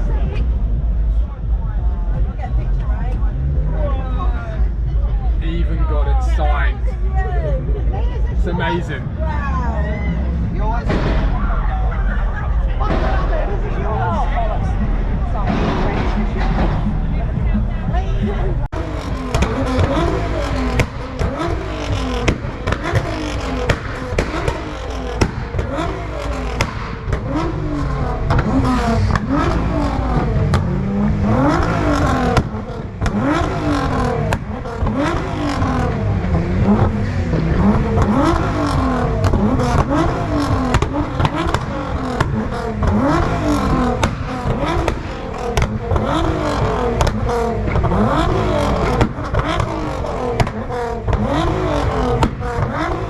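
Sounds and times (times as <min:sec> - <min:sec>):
car engine revving hard: 0:00.0 - 0:53.0
exhaust pops and cracks: 0:15.2 - 0:17.5, 0:18.7 - 0:53.0.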